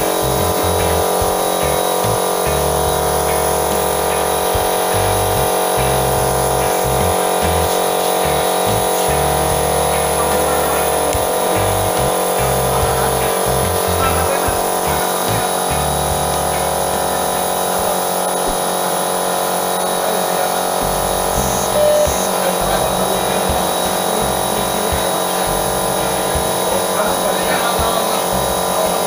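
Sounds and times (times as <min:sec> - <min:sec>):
compressor motor buzzing: 0:00.0 - 0:29.0.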